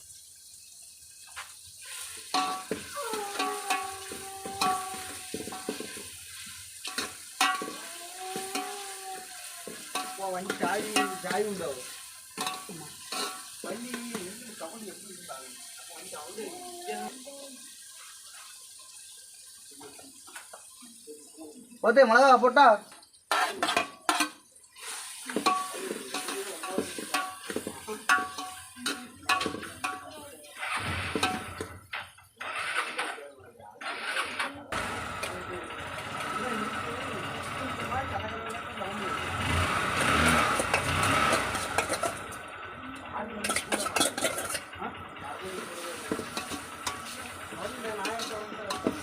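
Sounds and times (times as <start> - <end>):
food sizzling in pan: 0.0 - 33.2, 33.8 - 49.0
ladle scraping pan: 1.8 - 14.2, 23.3 - 33.2, 33.8 - 34.6, 40.0 - 42.4, 43.4 - 44.7, 45.6 - 49.0
metal ladle knocking on pot: 2.4 - 6.0, 6.9 - 8.8, 9.8 - 11.4, 25.4 - 30.1.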